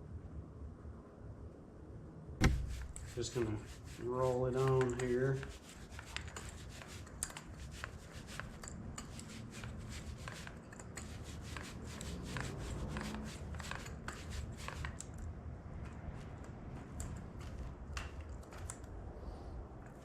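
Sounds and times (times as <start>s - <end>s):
paint roller rubbing on metal: 2.4s - 15.0s.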